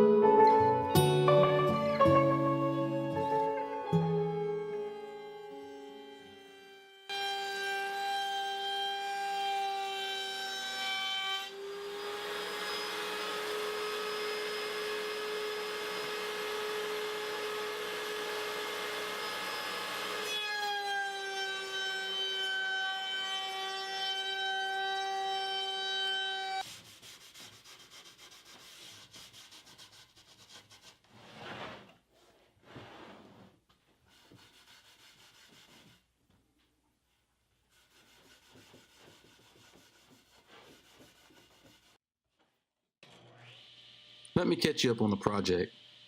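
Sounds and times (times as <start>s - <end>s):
woodworking machine whine: 4.7s - 26.6s, 43.1s - 44.4s, 45.7s - 46.0s
rubbing and handling noises: 26.6s - 42.0s.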